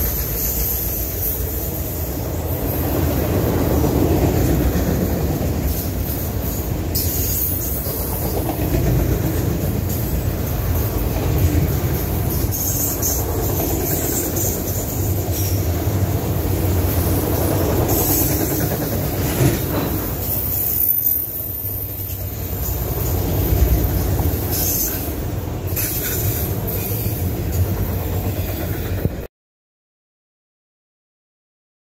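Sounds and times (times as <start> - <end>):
train wheels rumbling on rail: 0.0 - 29.3
high wheel squeals: 19.9 - 27.3.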